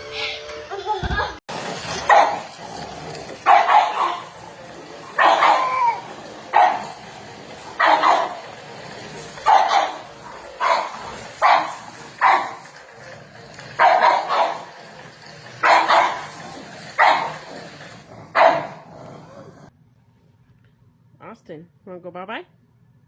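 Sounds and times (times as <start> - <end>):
dog barking: 2.1 - 2.4, 3.5 - 4.3, 5.2 - 7.0, 7.8 - 8.4, 9.4 - 12.6, 13.8 - 14.7, 15.6 - 16.4, 17.0 - 17.4, 18.3 - 18.8.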